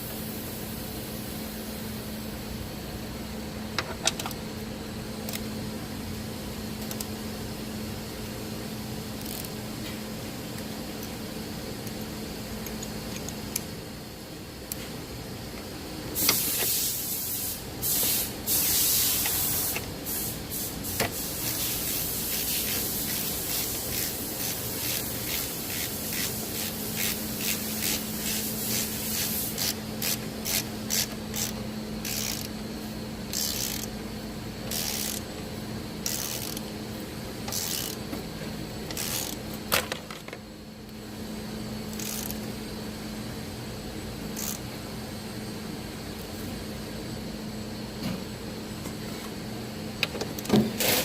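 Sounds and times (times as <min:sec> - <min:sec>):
ratchet wrench ratcheting: 0:09.2 - 0:09.6, 0:21.0 - 0:32.6, 0:33.3 - 0:34.0, 0:34.6 - 0:35.3, 0:36.0 - 0:36.7, 0:37.4 - 0:38.0, 0:38.9 - 0:39.5, 0:41.9 - 0:42.4, 0:44.4 - 0:44.6.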